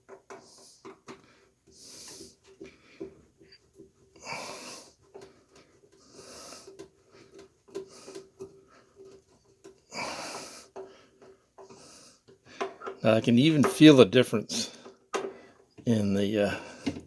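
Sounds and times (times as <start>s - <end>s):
person breathing wheezily: 4.1s - 9.2s, 9.8s - 12.9s, 16.4s - 17.0s.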